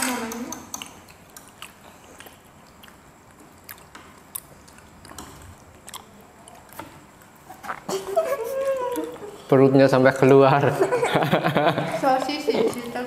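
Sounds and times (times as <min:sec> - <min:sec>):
chewing food: 0:00.7 - 0:08.0.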